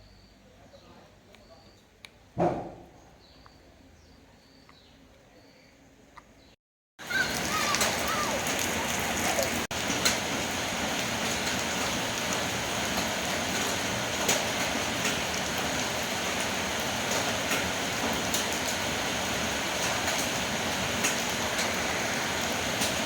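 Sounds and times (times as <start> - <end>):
faint high chirps: 0.0 - 1.9
rushing water hiss: 7.0 - 23.0.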